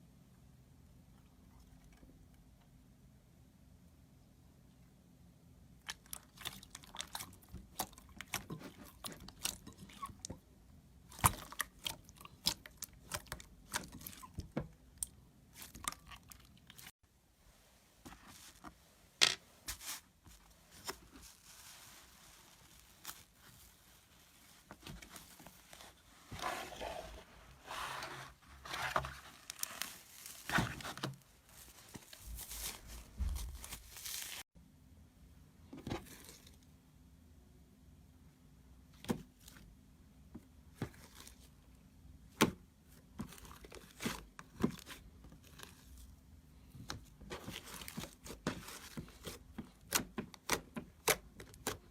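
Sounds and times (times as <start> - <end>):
slime tearing and crinkling: 29.3 - 30.8, 31.9 - 34.4.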